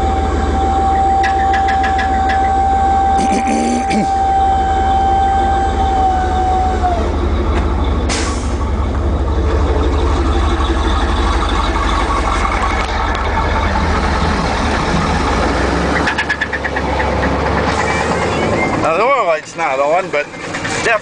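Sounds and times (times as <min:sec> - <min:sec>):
steady high tone: 0:00.0 - 0:15.6
truck engine rumbling with knock: 0:00.0 - 0:21.0.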